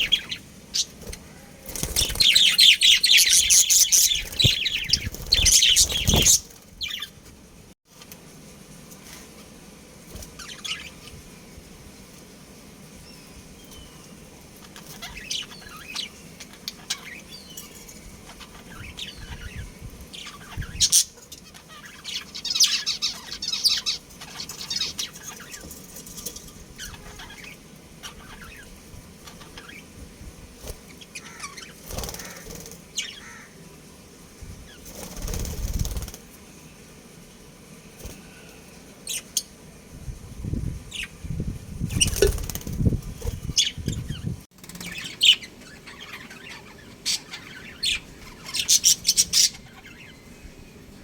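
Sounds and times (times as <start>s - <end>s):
budgies chirping: 0.0s - 7.2s, 10.4s - 11.2s, 14.6s - 25.8s, 26.8s - 29.9s, 30.6s - 33.5s, 41.9s - 50.6s
wing flutters: 0.0s - 7.3s, 14.6s - 33.4s, 34.4s - 36.4s, 41.7s - 46.0s.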